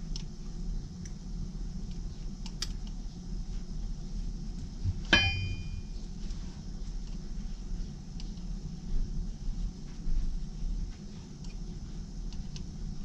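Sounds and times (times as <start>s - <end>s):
low hum: 0.0s - 13.0s
metallic clang: 5.1s - 5.9s.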